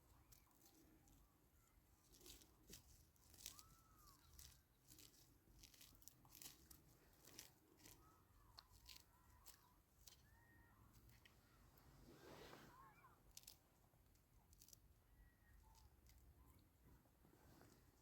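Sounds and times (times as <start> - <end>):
faint crackles and clicks: 0.1 - 17.0
faint high chirps: 12.2 - 13.2.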